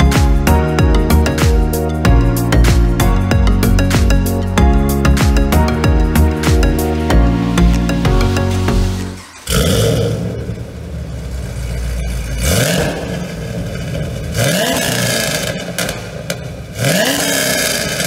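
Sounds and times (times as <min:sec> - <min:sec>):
car engine revving: 0:07.0 - 0:18.0.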